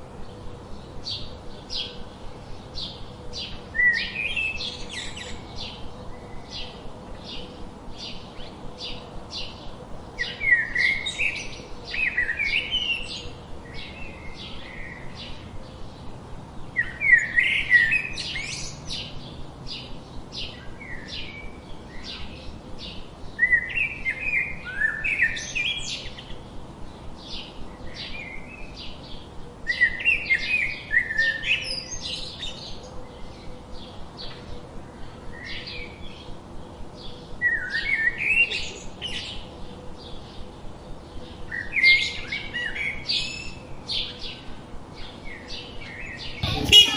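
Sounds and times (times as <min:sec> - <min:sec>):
birds chirping: 0:46.4 - 0:46.9.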